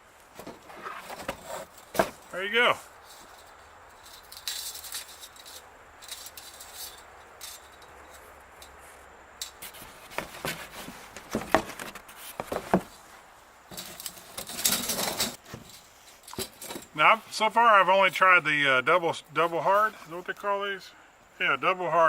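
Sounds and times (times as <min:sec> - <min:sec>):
metal clicks and clinks: 0:03.1 - 0:08.8.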